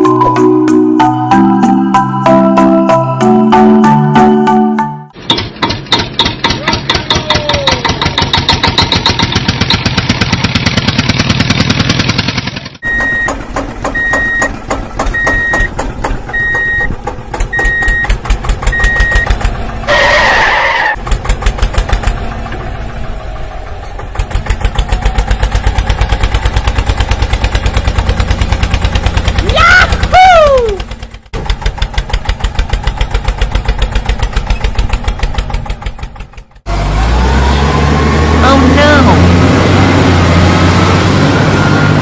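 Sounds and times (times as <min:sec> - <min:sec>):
truck engine chugging: 0:04.6 - 0:42.0
high reversing beeps: 0:12.8 - 0:14.5, 0:15.1 - 0:15.7, 0:16.3 - 0:16.9, 0:17.5 - 0:19.4, 0:41.2 - 0:42.0.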